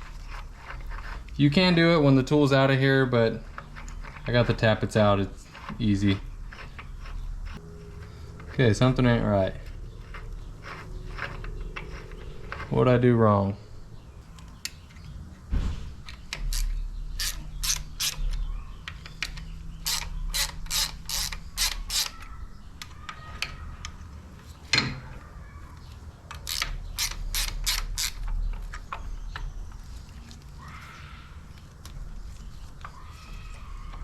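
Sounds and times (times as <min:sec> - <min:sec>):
ratchet wrench clicking: 0:16.2 - 0:18.4, 0:19.2 - 0:22.9, 0:26.3 - 0:28.2.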